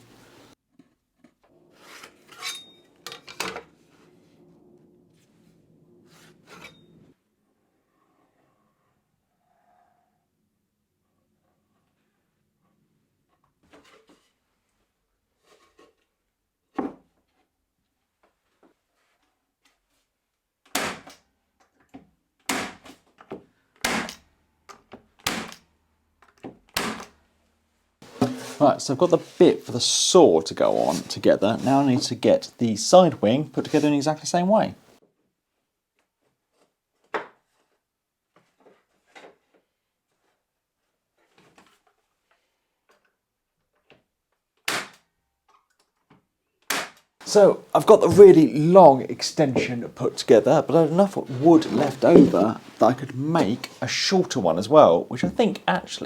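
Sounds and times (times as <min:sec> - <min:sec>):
nail gun firing into plywood: 0:20.7 - 0:21.2, 0:22.5 - 0:22.9, 0:23.8 - 0:24.2, 0:25.2 - 0:25.6, 0:26.7 - 0:27.1, 0:44.7 - 0:45.0
plywood scraping: 0:28.0 - 0:34.1, 0:47.2 - 0:56.0.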